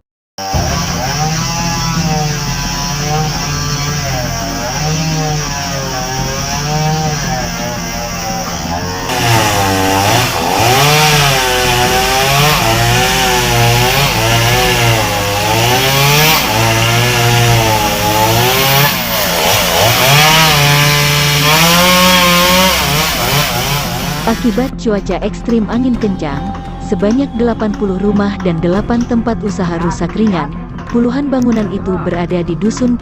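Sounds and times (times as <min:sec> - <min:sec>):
chainsaw cutting wood: 0:00.4 - 0:24.7.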